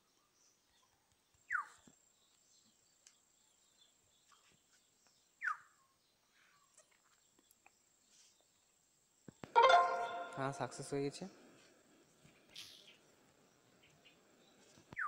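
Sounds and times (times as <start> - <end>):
faint background noise: 0.0 - 15.0.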